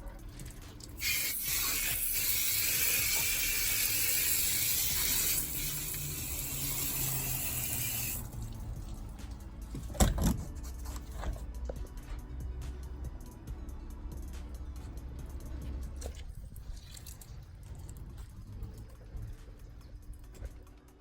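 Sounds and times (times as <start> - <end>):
water spraying from hose: 0.7 - 9.2, 16.0 - 17.8.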